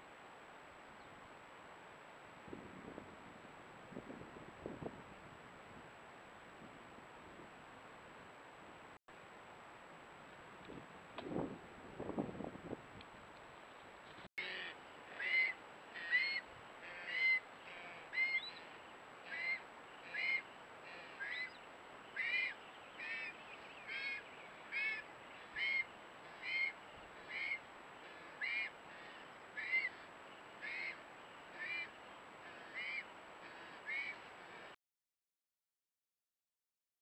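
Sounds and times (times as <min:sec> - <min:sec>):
bird repeating high call: 0:14.4 - 0:18.6, 0:19.2 - 0:27.6, 0:28.4 - 0:34.2.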